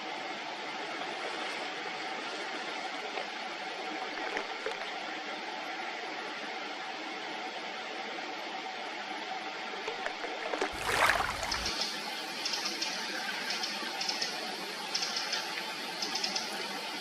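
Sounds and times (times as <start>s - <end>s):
river water flowing: 10.5s - 12.8s.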